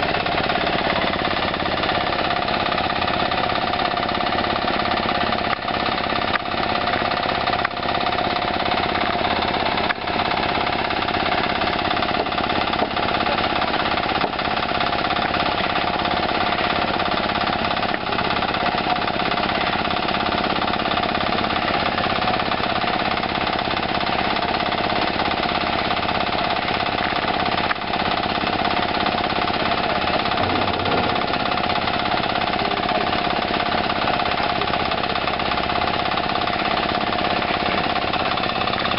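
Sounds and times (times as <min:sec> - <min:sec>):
concrete machinery din: 0:29.7 - 0:33.6.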